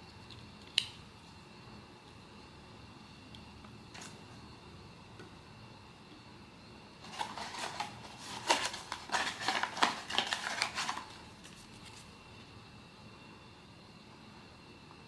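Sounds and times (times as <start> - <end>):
packaging crinkling and clicking: 7.0 - 12.1.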